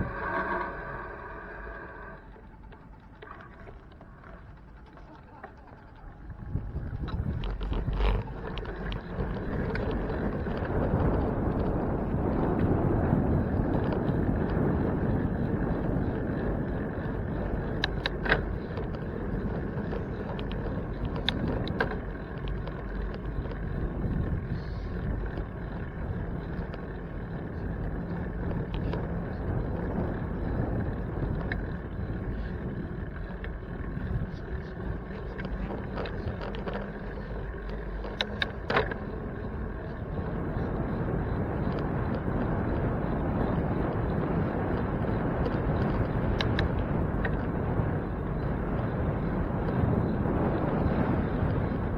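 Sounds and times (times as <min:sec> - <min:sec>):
bicycle road noise: 0:00.0 - 0:51.9
sharp clicks and rattles: 0:00.0 - 0:51.9
wind rumble: 0:00.0 - 0:51.9.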